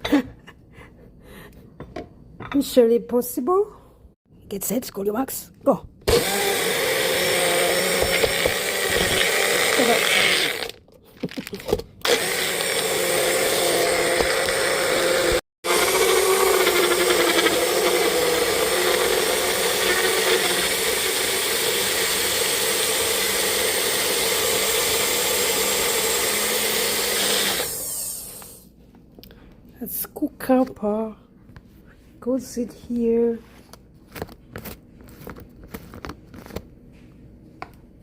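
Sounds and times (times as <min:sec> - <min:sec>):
electric blender running: 0:06.0 - 0:10.8, 0:12.0 - 0:28.6.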